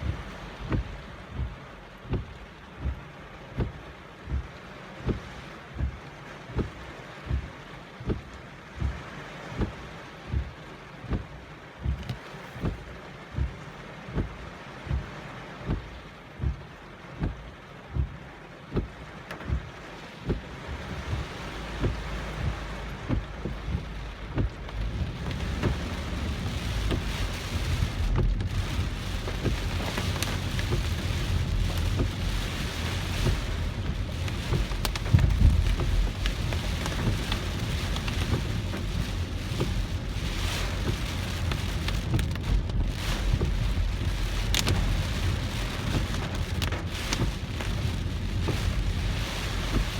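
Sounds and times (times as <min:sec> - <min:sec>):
car driving on flooded road: 0:00.0 - 0:49.9
heavy rain on car: 0:00.0 - 0:49.9
low thumps: 0:18.0 - 0:49.9.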